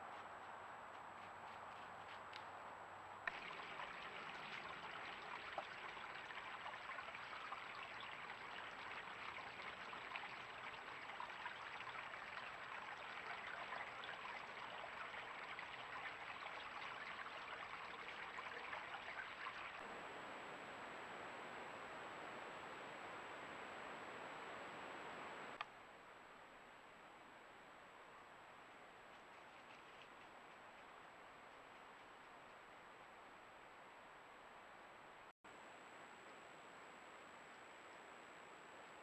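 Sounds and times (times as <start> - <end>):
crackling hiss of water: 3.2 - 21.0
faint high whine: 19.8 - 28.9.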